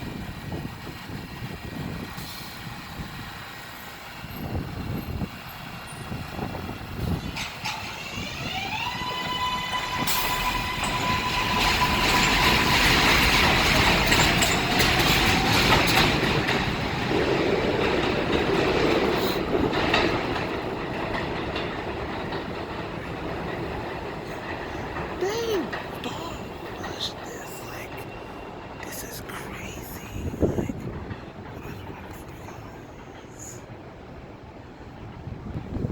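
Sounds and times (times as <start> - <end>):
train wheels clattering on rails: 0.0 - 29.2, 30.5 - 35.9.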